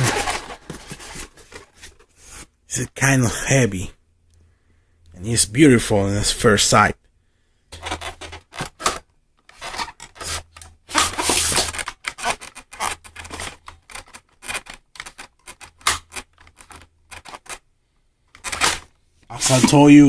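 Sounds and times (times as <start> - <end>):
rubbing and scraping handling noise: 0.0 - 2.6, 7.7 - 17.7, 18.3 - 20.0.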